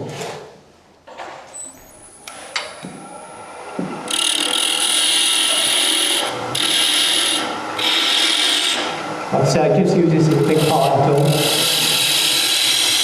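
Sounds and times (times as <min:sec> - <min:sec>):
wood lathe running: 0:01.9 - 0:13.0
tool scraping wood: 0:03.8 - 0:09.3, 0:10.2 - 0:13.0.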